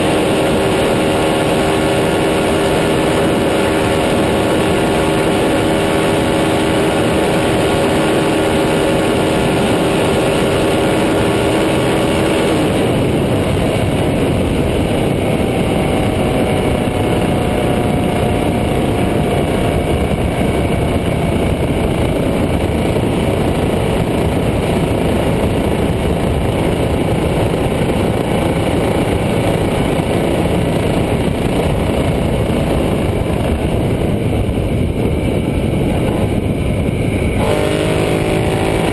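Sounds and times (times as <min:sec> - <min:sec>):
dense rushing noise: 0:00.0 - 0:38.9
motorcycle engine running: 0:00.0 - 0:38.9.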